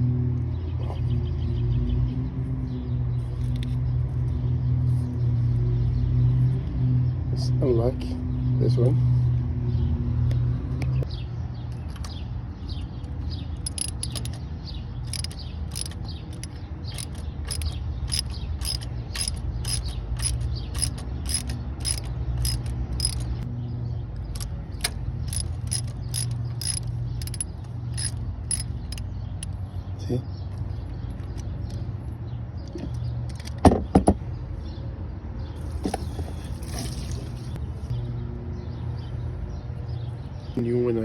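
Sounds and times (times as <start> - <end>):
ratchet wrench clicking: 13.6 - 14.4, 15.0 - 23.5, 24.2 - 29.6.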